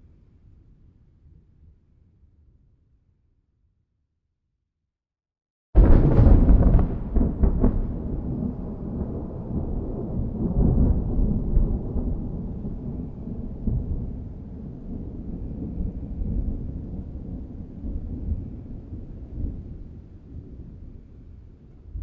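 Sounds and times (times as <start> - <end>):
thunder clap and rumble: 5.8 - 22.0.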